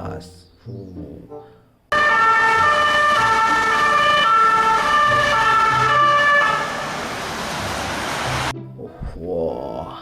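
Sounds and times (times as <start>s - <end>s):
electronic siren: 1.9s - 6.9s.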